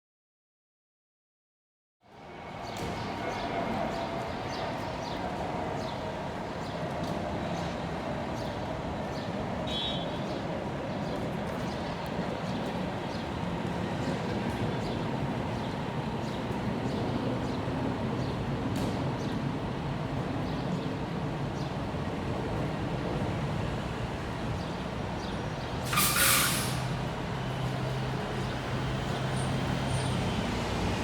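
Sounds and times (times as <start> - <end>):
street noise: 2.1 - 31.0
air brake hiss: 25.8 - 27.0.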